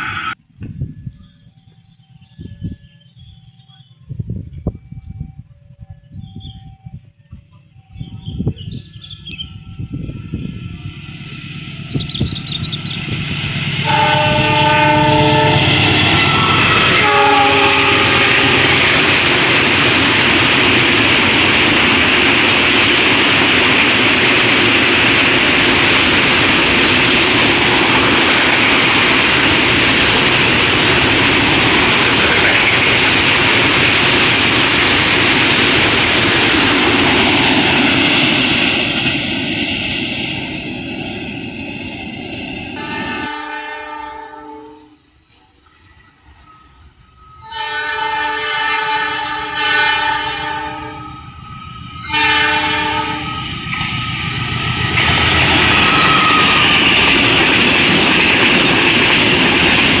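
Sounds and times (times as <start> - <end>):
train wheels rushing on rails: 0.0 - 60.0
train horn blasts: 13.7 - 20.3, 42.8 - 45.2, 47.4 - 53.6, 55.5 - 57.0.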